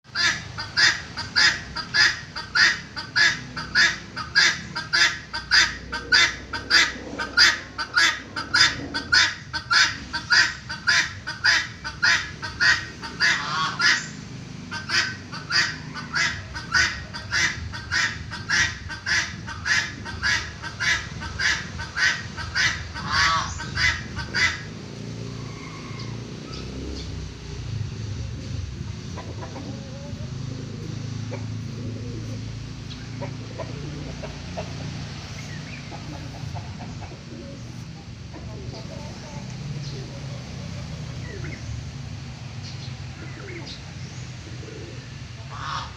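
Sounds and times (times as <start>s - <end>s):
peafowl honking calls: 0.1s - 27.6s, 44.6s - 45.9s.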